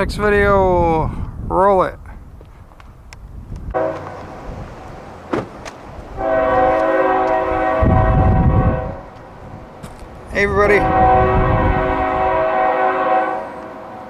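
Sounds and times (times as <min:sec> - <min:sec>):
wind buffeting microphone: 0:00.0 - 0:14.0
locomotive air horn: 0:03.7 - 0:04.6, 0:06.0 - 0:09.4, 0:10.6 - 0:14.0.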